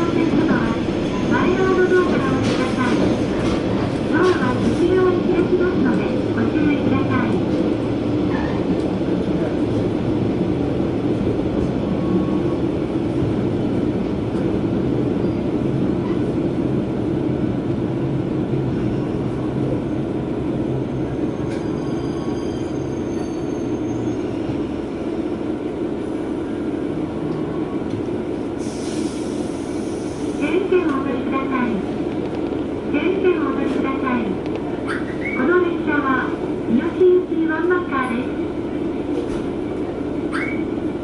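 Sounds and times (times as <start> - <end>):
diesel railcar engine drone: 0.0 - 41.0
faint high squeal: 21.3 - 24.4.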